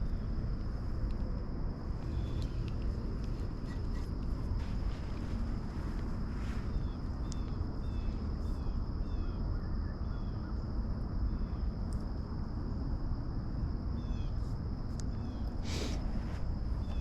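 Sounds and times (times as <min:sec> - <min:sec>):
high insect drone: 0:00.0 - 0:17.0
wind rumble on microphone: 0:00.0 - 0:17.0.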